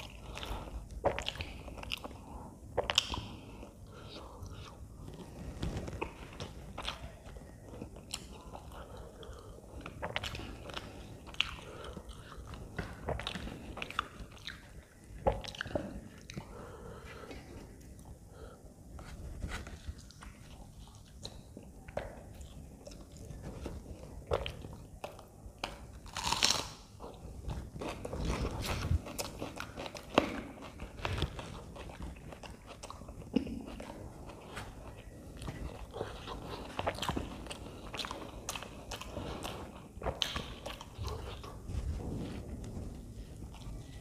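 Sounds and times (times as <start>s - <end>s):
person chewing and biting: 0.0s - 18.2s, 19.0s - 44.0s.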